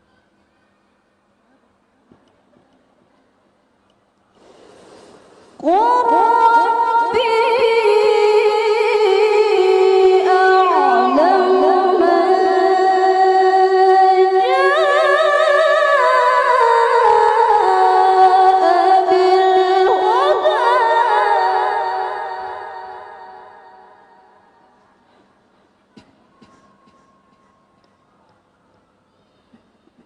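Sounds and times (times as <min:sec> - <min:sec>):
woman reciting melodically: 0:05.6 - 0:23.6.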